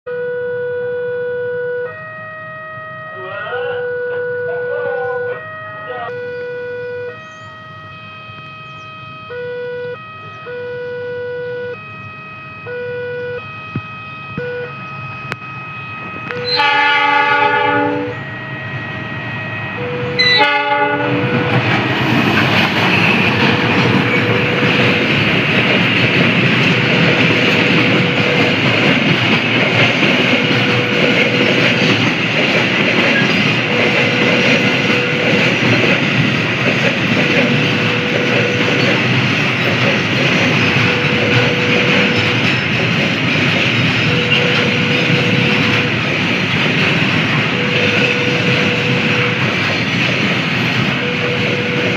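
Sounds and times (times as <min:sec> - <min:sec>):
train horn blast: 0:00.1 - 0:22.2, 0:22.9 - 0:25.2, 0:26.7 - 0:29.0, 0:29.9 - 0:32.1, 0:33.1 - 0:36.2, 0:37.0 - 0:39.2, 0:40.2 - 0:42.7, 0:43.9 - 0:46.2, 0:47.3 - 0:49.7, 0:50.6 - 0:51.9
level crossing warning tones: 0:00.1 - 0:51.9
train wheels rumbling and clacking: 0:15.2 - 0:51.9.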